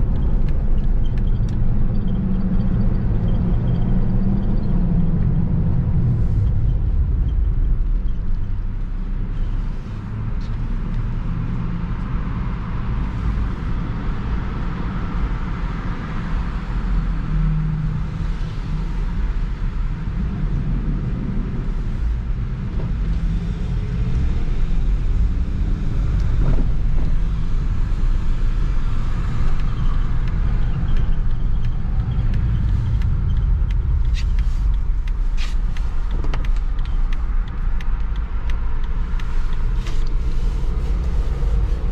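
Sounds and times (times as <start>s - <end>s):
engine rumble: 0.0s - 41.9s
road noise: 0.0s - 41.9s.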